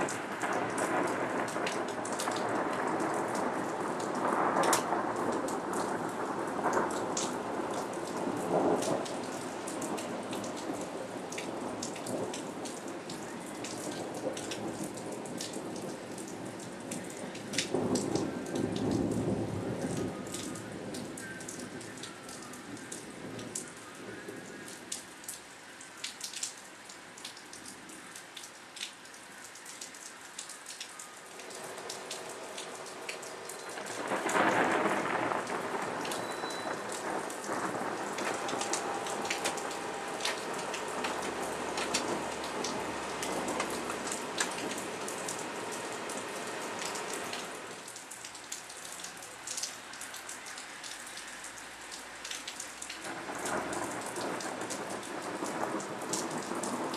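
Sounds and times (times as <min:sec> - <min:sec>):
thunder rumbling: 0:00.0 - 0:12.7, 0:31.4 - 0:48.0, 0:53.1 - 0:56.9
close raindrops ticking: 0:00.0 - 0:56.9
rain pattering: 0:00.0 - 0:56.9.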